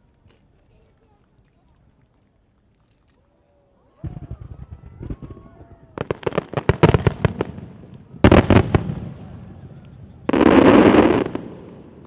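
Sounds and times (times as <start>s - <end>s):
firework bangs: 4.0s - 12.0s
firework crackling burst: 10.3s - 12.0s.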